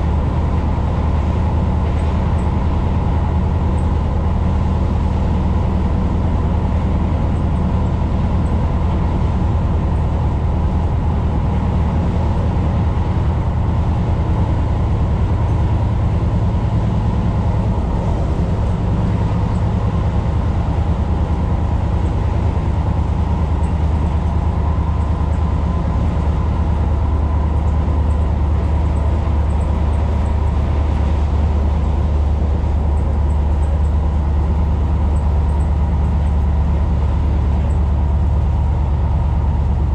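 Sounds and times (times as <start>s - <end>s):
train rumbling on track: 0.0s - 39.9s.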